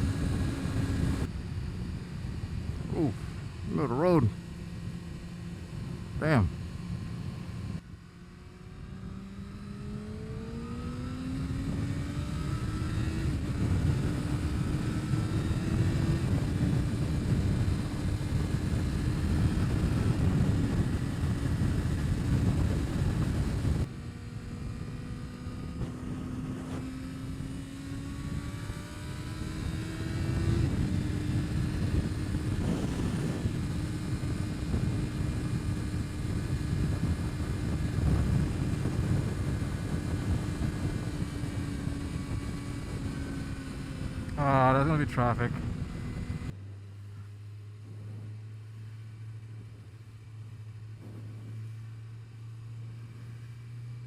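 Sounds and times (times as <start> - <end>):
motorcycle engine accelerating: 0.0 - 54.0
wind buffeting microphone: 11.7 - 44.4, 45.5 - 46.6, 50.9 - 51.7.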